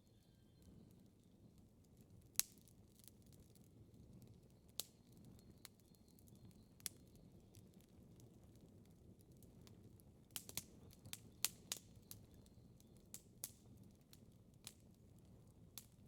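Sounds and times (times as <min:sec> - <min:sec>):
campfire low rumble: 0:00.1 - 0:16.0
burning logs crackling and popping: 0:00.4 - 0:16.0.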